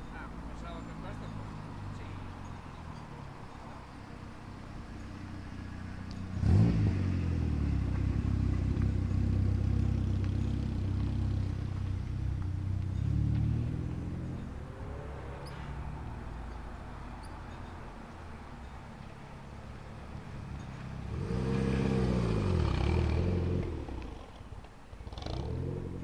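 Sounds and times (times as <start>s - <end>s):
car engine revving: 4.9s - 16.6s, 20.4s - 26.0s.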